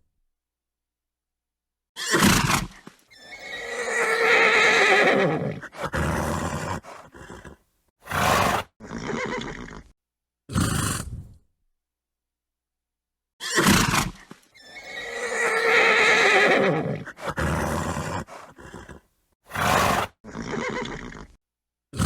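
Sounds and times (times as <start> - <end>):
horse whinnying: 2.0 - 9.9, 13.4 - 21.4
horse snorting: 2.1 - 9.9, 10.5 - 11.4, 13.5 - 21.4.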